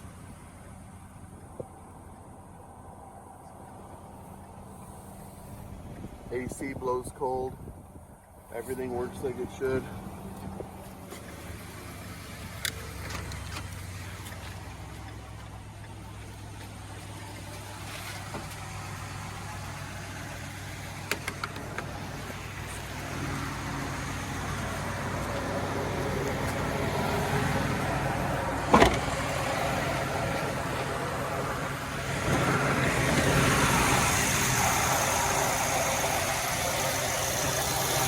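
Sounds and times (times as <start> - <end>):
truck engine idling: 0.0 - 38.0.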